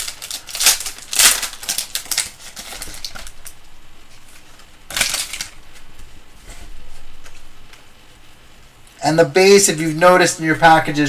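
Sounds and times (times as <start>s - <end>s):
trading cards rustling: 0.0s - 3.6s, 4.3s - 6.0s.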